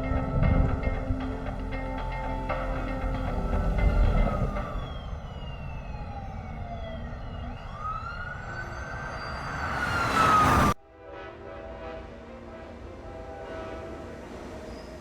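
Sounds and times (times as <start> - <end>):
wailing siren-like tones: 0.0 - 10.8.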